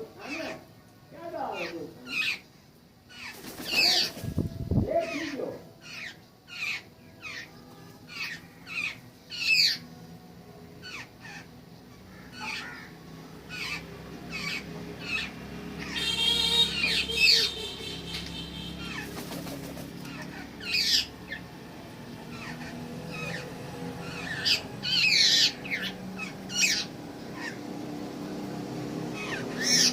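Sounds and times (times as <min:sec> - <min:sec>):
birds calling: 0:01.4 - 0:09.9, 0:10.8 - 0:29.9
harsh buzzy bird call: 0:10.8 - 0:21.4.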